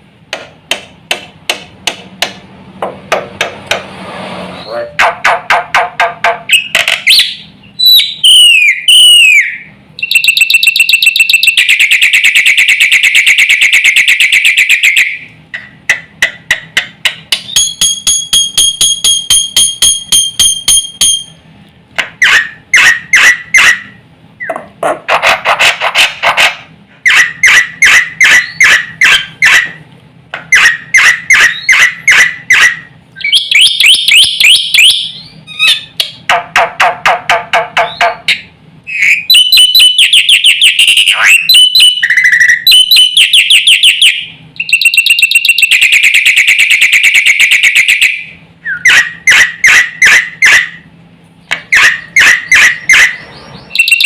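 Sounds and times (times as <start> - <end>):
buzzy bird trill: 6.5 - 12.2, 17.4 - 21.4, 30.5 - 36.0, 37.8 - 50.6, 51.7 - 54.0.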